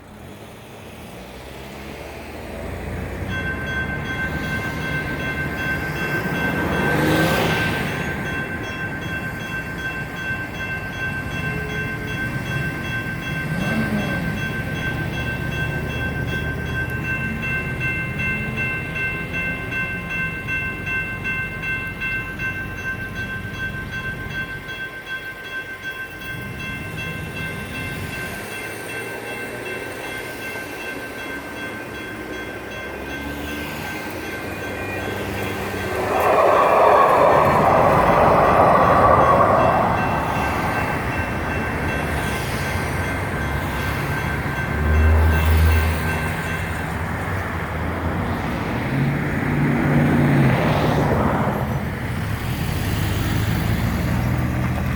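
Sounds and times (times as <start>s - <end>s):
road vehicle passing: 0.0s - 10.6s, 32.6s - 54.9s
light rail train rumbling past: 0.0s - 54.9s
electronic crossing bells ringing: 2.9s - 48.4s.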